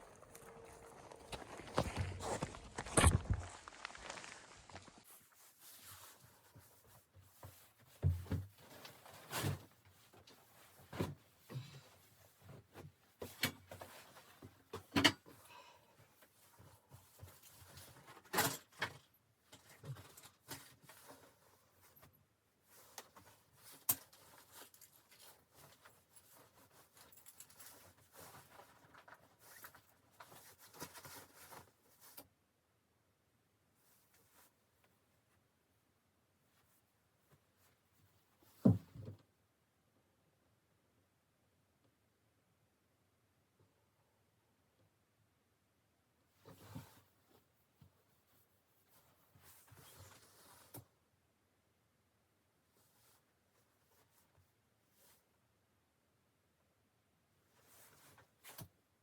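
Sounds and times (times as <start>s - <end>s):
rustling and crinkling handling noise: 0.0s - 32.4s, 33.8s - 35.5s, 46.3s - 51.0s, 52.7s - 55.4s, 57.4s - 59.0s
soft thuds and knocks: 38.6s - 39.2s.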